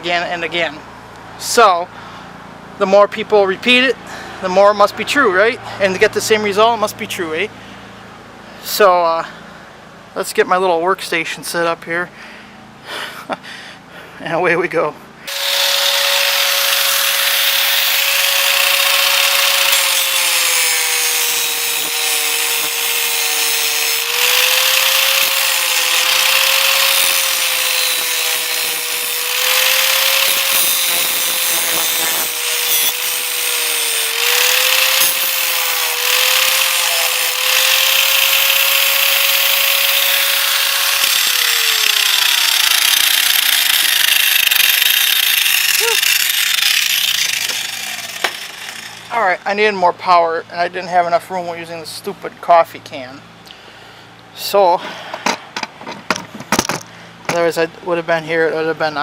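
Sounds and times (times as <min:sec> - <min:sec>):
power tool spinning down: 0:15.3 - 0:49.1
power tool cutting steel: 0:15.3 - 0:49.2.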